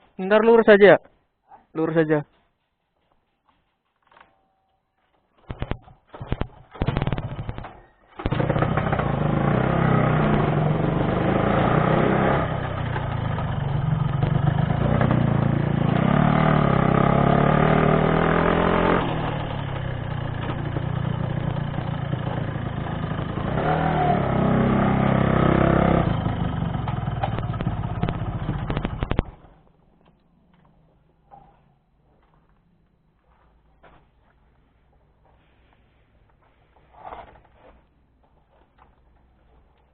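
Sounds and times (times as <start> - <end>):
two-stroke motorcycle engine revving: 6.2 - 29.4.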